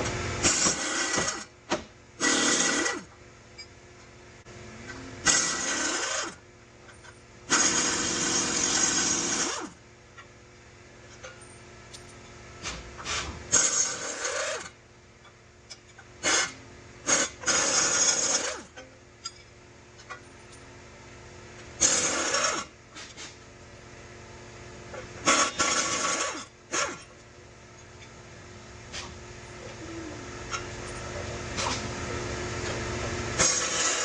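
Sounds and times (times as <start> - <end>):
air tool bursts with spin-down: 2.2 - 3.1, 5.2 - 6.4, 7.5 - 9.8, 13.0 - 14.8, 16.2 - 18.7, 21.8 - 22.8, 25.2 - 27.0, 33.4 - 34.0.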